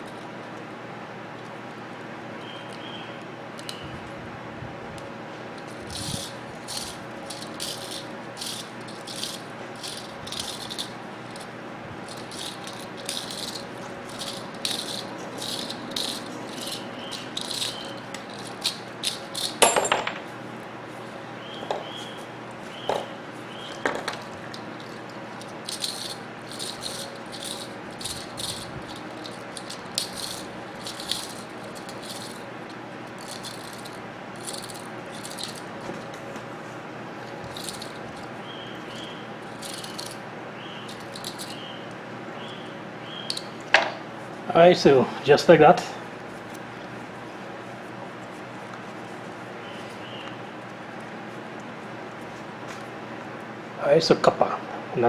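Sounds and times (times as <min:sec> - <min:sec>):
small metal parts rattling: 0:05.6 - 0:20.2, 0:23.6 - 0:36.1, 0:37.3 - 0:40.2, 0:40.8 - 0:41.6, 0:43.3 - 0:43.8
metallic clink: 0:12.1 - 0:20.2.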